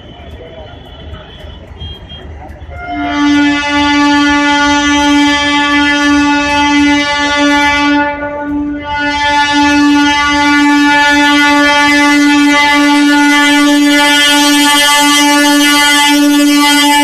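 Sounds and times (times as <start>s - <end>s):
train horn blast: 0.0s - 17.0s.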